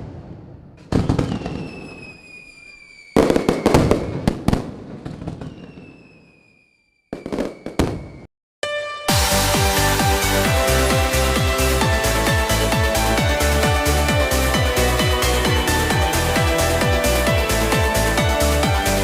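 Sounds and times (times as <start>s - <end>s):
fireworks bangs: 0.0s - 8.3s
fireworks crackling pops: 0.0s - 8.3s
falling whistles: 1.0s - 4.3s, 5.3s - 8.3s
electronic music: 8.6s - 19.0s.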